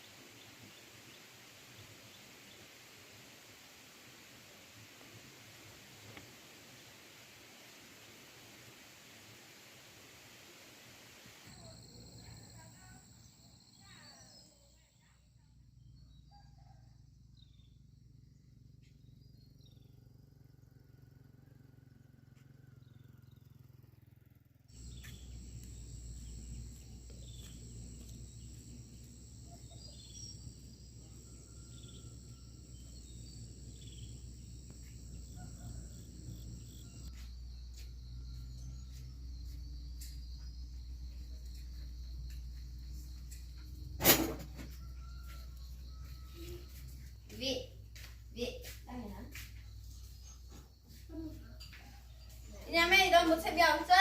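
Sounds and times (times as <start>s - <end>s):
insects trilling: 11.4s - 15.2s, 24.7s - 54.0s
bird chirps: 24.8s - 43.6s.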